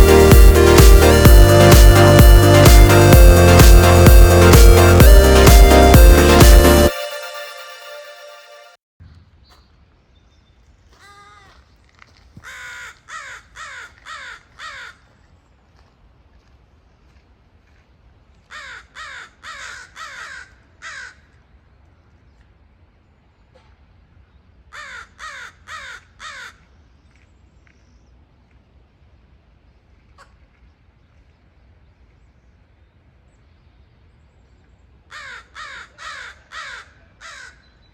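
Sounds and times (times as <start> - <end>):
crow cawing: 12.4 - 15.0, 18.5 - 21.2, 24.7 - 26.6, 35.1 - 37.6.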